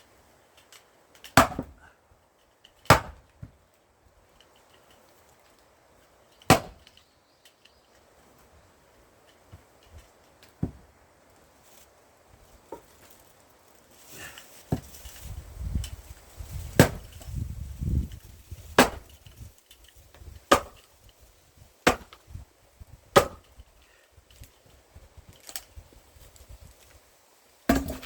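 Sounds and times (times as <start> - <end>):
axe chopping wood: 1.2 - 1.8, 2.8 - 3.5, 6.5 - 6.9, 10.6 - 10.8, 14.7 - 15.0, 16.7 - 17.2, 18.7 - 19.2, 20.5 - 20.9, 21.8 - 22.4, 23.1 - 23.5, 27.7 - 28.0.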